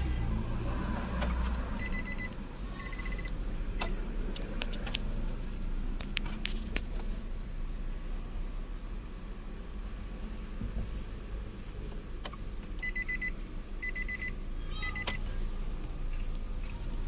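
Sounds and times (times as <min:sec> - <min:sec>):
rapid electronic beeping: 0:01.8 - 0:03.3.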